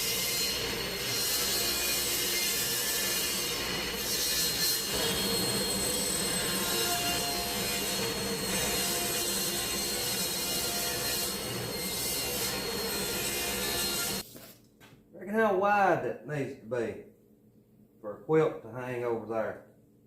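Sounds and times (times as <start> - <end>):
table saw ripping wood: 0.0 - 14.5.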